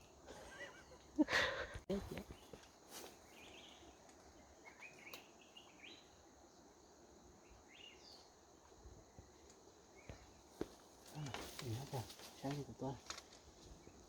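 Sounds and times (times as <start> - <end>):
faint bird chirps: 2.0 - 6.6.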